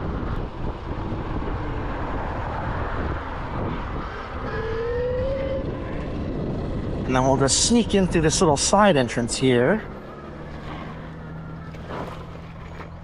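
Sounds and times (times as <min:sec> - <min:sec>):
wind rushing over microphone: 0:00.0 - 0:11.6
rolling tyre noise: 0:00.0 - 0:13.0.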